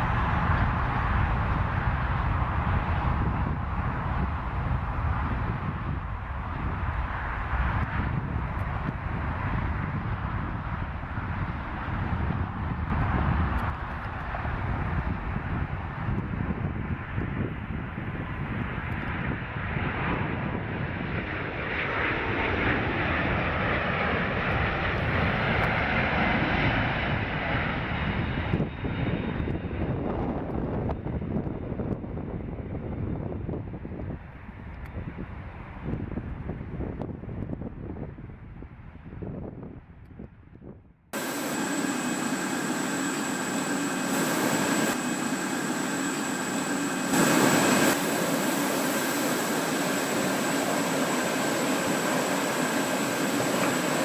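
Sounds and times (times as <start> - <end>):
airplane engine rush: 0.0 - 54.0
high whine: 41.2 - 54.0.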